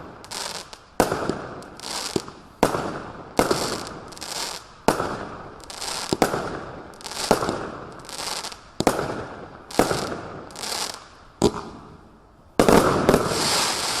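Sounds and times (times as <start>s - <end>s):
firework hiss: 12.7s - 14.0s.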